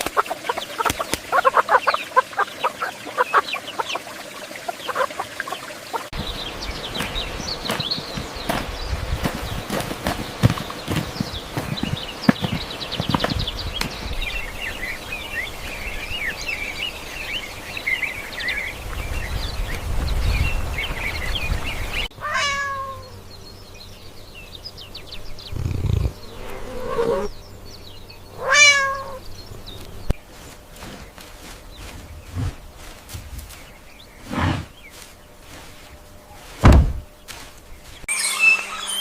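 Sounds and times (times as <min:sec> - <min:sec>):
cat meowing: 0:22.2 - 0:23.1, 0:28.4 - 0:29.2
high chirps chatter: 0:38.1 - 0:39.0.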